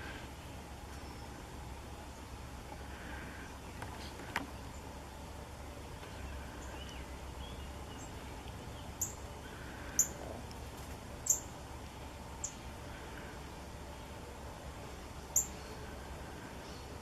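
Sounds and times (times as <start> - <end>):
low background rumble: 0.0 - 17.0
songbirds chirping: 0.0 - 17.0.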